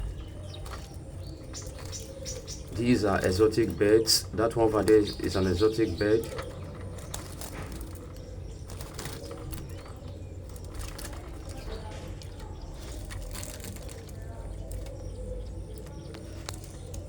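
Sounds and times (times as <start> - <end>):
steady low rumble: 0.0 - 1.4
cage birds chirping: 0.0 - 17.0
wing flutters: 0.0 - 17.0.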